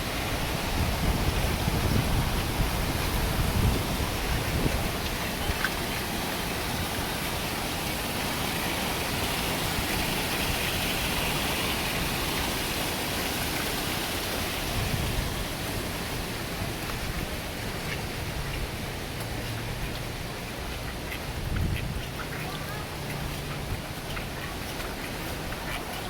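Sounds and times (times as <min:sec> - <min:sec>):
wind gusting: 0:00.0 - 0:07.8, 0:13.8 - 0:19.1
heavy rain hissing: 0:00.0 - 0:26.0.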